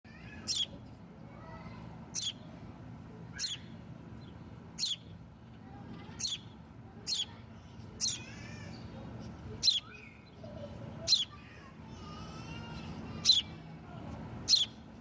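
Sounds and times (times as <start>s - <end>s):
baby birds chirping: 0.3s - 0.8s, 2.1s - 2.5s, 3.3s - 5.2s, 6.0s - 11.4s, 12.6s - 13.6s, 14.4s - 14.8s.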